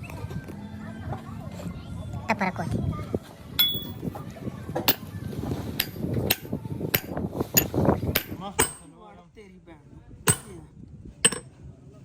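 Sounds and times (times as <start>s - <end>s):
hammer striking steel: 3.6s - 4.0s, 5.8s - 8.9s, 10.3s - 10.6s, 11.3s - 11.5s.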